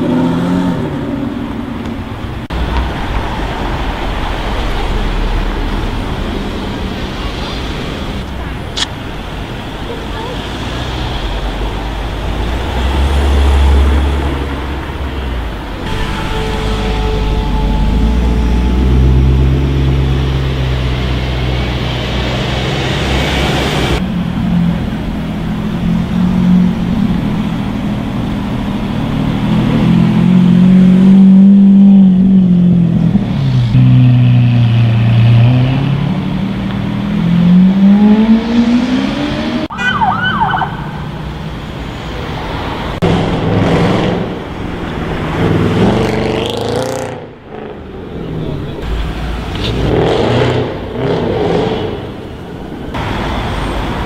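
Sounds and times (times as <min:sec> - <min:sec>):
sports car engines revving: 0:00.0 - 0:54.0.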